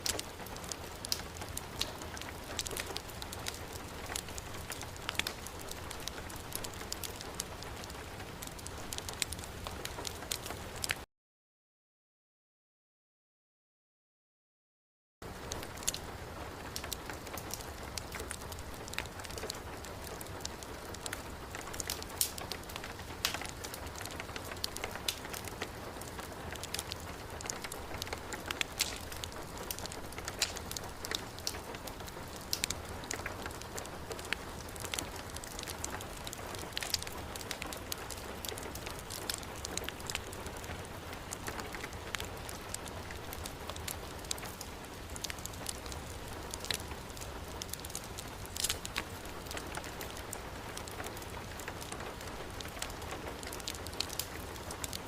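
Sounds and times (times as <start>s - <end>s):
heavy rain: 0.0s - 11.0s, 15.2s - 55.0s
wood fire crackling: 0.0s - 11.0s, 15.2s - 55.0s.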